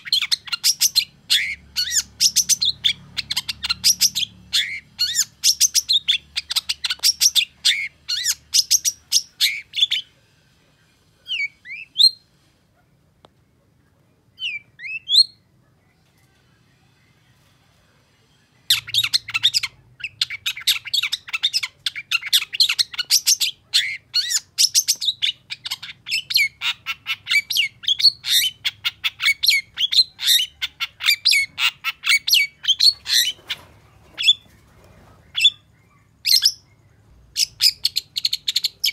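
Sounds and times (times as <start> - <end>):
bird chattering song: 0.0 - 10.1, 18.7 - 38.9.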